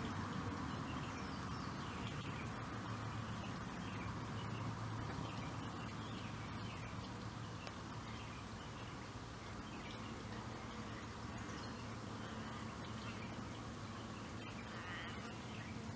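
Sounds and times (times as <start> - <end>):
steady low hum: 0.0 - 15.9
faint bird calls: 9.8 - 15.9.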